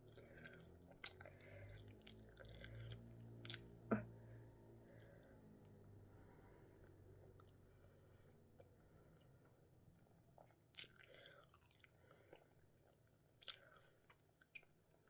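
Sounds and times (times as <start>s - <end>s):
person chewing: 0.0s - 4.1s, 10.3s - 14.7s.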